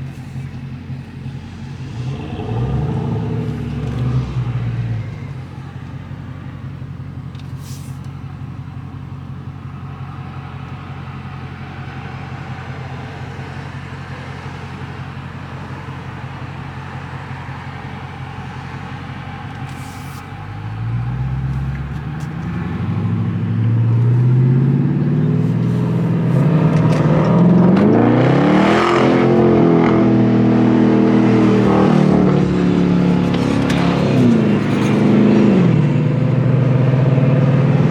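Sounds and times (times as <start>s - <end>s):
car engine accelerating: 0.0s - 37.9s.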